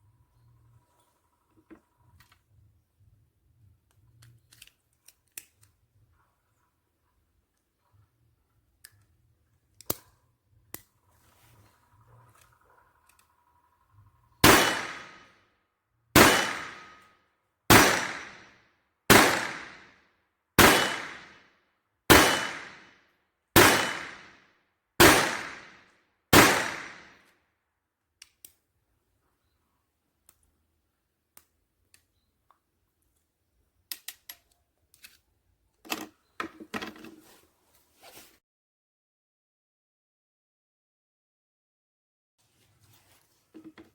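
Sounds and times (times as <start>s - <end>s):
gun handling clicks: 3.9s - 5.8s, 8.8s - 10.9s, 28.2s - 28.6s, 33.9s - 35.2s
pistol shots: 14.4s - 15.3s, 16.2s - 17.0s, 17.7s - 18.5s, 19.1s - 19.9s, 20.6s - 21.4s, 22.1s - 22.9s, 23.6s - 24.4s, 25.0s - 27.2s.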